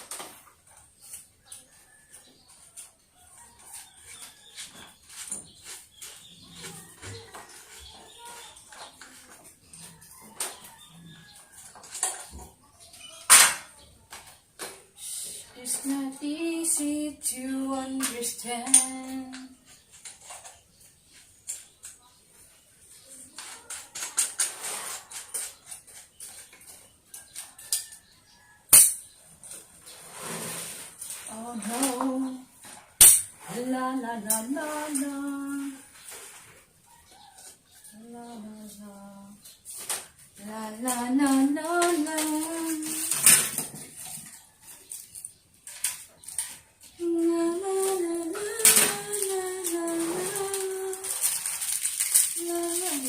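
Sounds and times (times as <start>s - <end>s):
fan parts clicking and clattering: 30.7s - 53.0s
plastic parts clicking and knocking: 47.8s - 53.0s.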